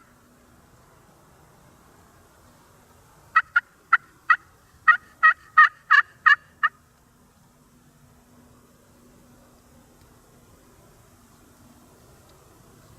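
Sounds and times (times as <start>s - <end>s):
turkey yelping: 3.4s - 6.8s.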